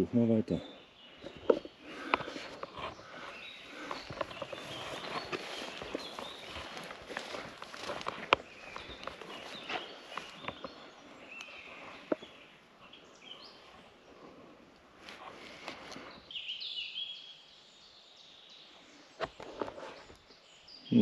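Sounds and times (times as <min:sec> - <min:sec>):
small birds chirping: 0:00.0 - 0:21.0
footsteps on forest floor: 0:01.0 - 0:16.5.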